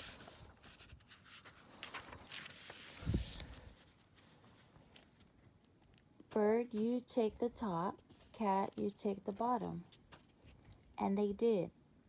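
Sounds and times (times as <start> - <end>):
paper page rustling: 0.0 - 6.0, 7.9 - 10.7.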